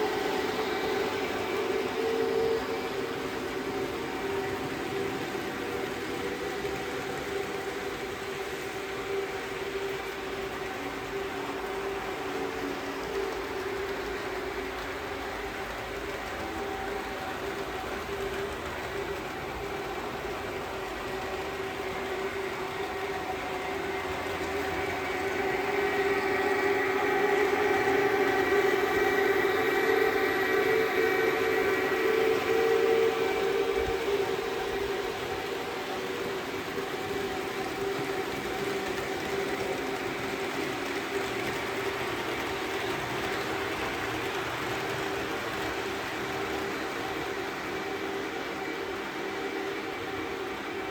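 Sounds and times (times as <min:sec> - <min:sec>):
model train motor hum: 0:00.0 - 0:50.9
wheels rolling on rails: 0:00.0 - 0:50.9.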